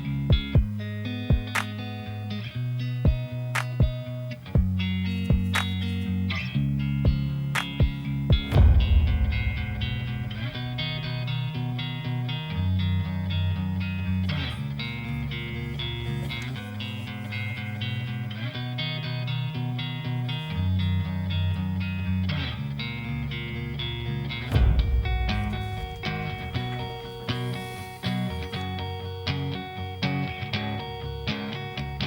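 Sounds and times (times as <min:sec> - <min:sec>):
plucked guitar notes: 0:00.0 - 0:32.0
bass line: 0:06.9 - 0:15.7, 0:24.3 - 0:29.2.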